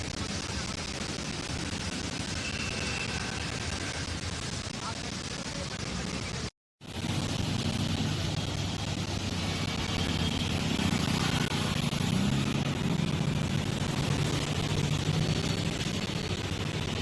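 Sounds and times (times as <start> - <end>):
street noise: 0.0 - 17.0
vehicle engines hum: 0.0 - 17.0.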